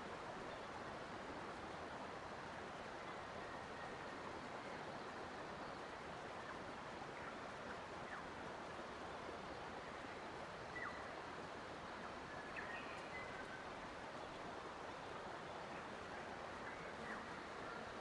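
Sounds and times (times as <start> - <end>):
faint bird chirps: 9.5 - 11.2, 11.9 - 14.4, 15.0 - 18.0.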